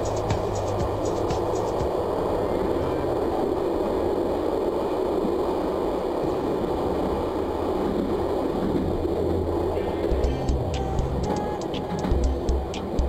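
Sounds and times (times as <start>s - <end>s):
train rumble and hiss: 0.0s - 13.0s.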